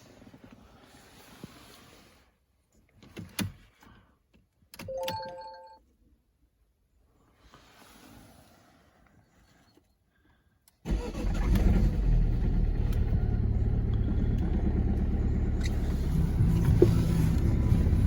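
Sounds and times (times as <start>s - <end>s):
diesel engine starting and idling: 10.8s - 18.0s.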